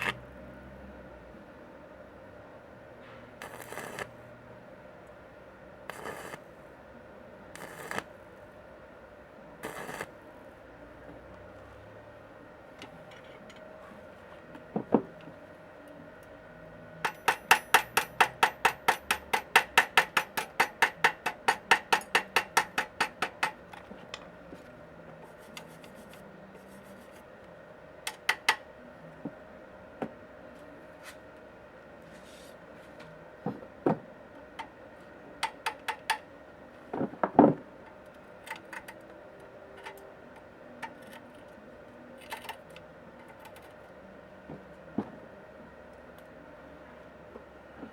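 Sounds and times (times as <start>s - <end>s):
hammer tapping on metal: 17.0s - 24.3s, 28.1s - 28.7s, 35.4s - 36.3s.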